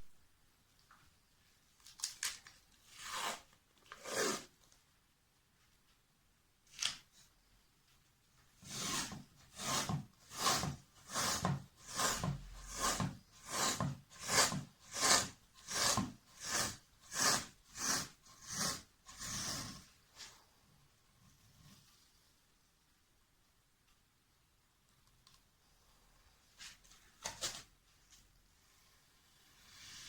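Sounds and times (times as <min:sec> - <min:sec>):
hand rubbing wooden board: 0:08.7 - 0:19.8.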